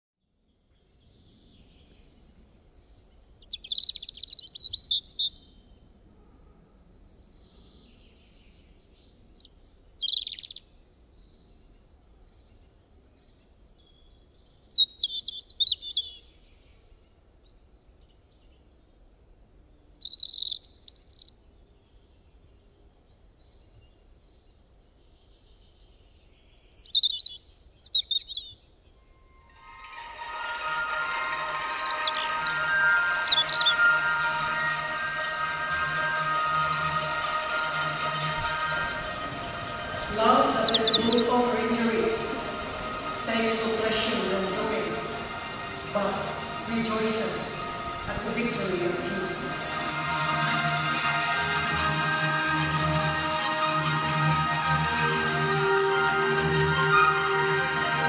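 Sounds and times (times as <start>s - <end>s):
birds chirping: 1.1s - 5.7s, 14.4s - 16.2s, 19.8s - 21.4s, 25.1s - 49.9s.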